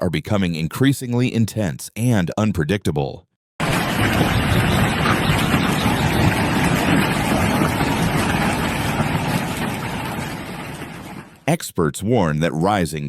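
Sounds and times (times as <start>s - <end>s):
heavy rain: 3.6s - 11.4s
storm wind: 3.6s - 11.5s.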